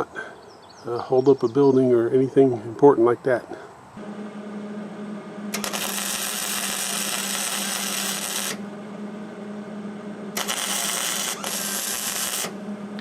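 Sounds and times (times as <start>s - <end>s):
steady low hum: 3.4s - 13.0s
welding arc crackle: 5.5s - 8.6s, 10.4s - 12.6s.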